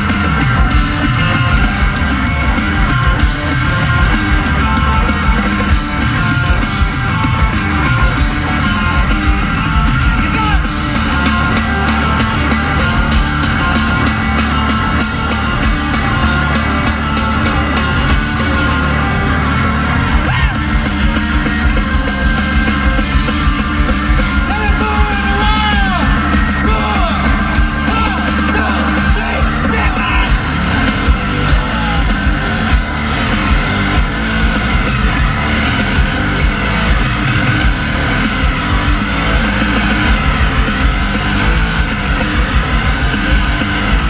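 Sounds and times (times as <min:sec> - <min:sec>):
rock band playing: 0:00.0 - 0:44.0
person singing: 0:24.4 - 0:34.5.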